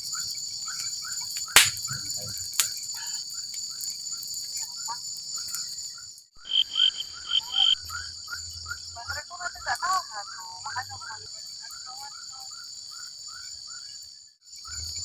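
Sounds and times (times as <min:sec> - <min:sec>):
insects trilling: 0:00.0 - 0:15.0
short chirping calls: 0:06.4 - 0:08.9.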